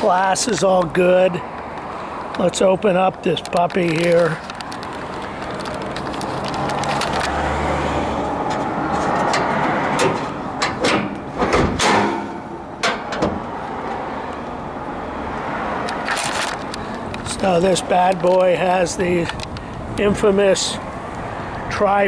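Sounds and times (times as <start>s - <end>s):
road traffic noise: 0.0s - 22.0s
car hood latch clicks and knocks: 9.2s - 13.7s.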